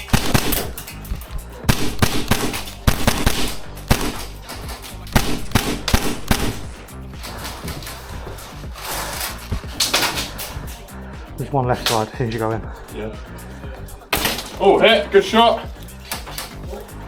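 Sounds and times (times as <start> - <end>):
airsoft guns firing: 0.0 - 0.9, 1.7 - 4.6, 5.2 - 6.8
background music with steady beat: 0.0 - 17.0.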